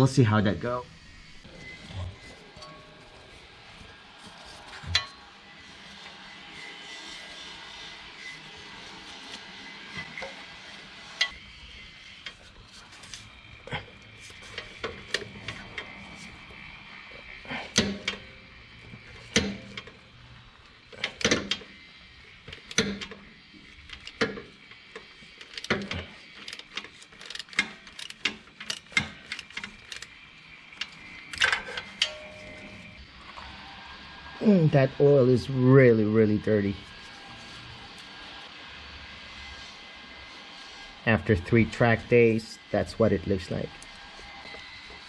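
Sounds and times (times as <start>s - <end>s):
socket ratchet clicking: 25.4s - 30.2s.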